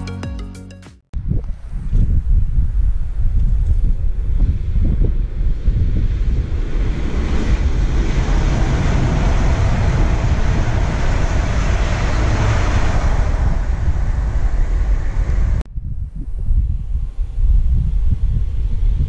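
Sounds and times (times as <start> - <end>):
wind buffeting microphone: 1.2 - 19.0
train wheels rumbling on rail: 7.1 - 15.6.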